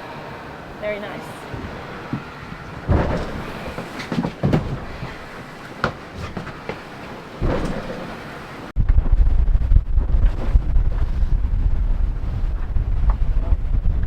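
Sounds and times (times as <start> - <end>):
rumble of water: 0.0 - 14.0
wind buffeting microphone: 0.0 - 14.0
thuds and knocks from hull: 1.5 - 5.2, 7.4 - 8.2.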